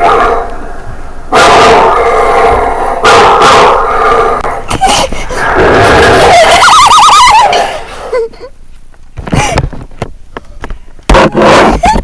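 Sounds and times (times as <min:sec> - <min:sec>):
dog barking and yipping: 0:01.3 - 0:03.9.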